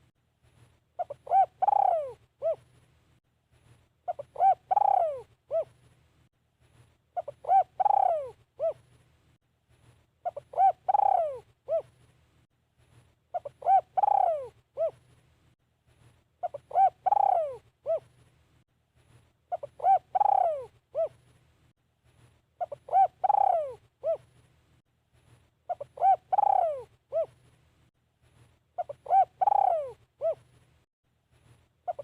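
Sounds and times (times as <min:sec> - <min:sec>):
dove cooing: 0:01.0 - 0:02.7, 0:04.1 - 0:05.8, 0:07.2 - 0:08.9, 0:10.2 - 0:12.0, 0:13.3 - 0:15.0, 0:16.4 - 0:18.1, 0:19.5 - 0:21.2, 0:22.6 - 0:24.3, 0:25.7 - 0:27.4, 0:28.8 - 0:30.5.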